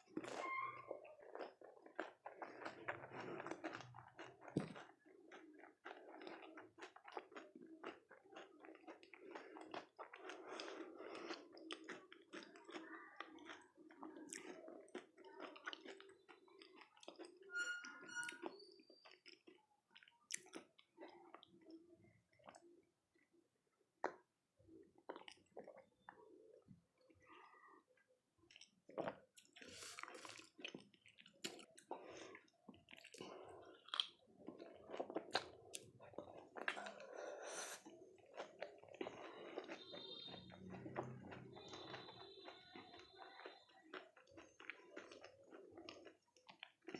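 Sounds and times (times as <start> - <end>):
crisp chewing: 1.0 - 17.5, 28.5 - 46.9.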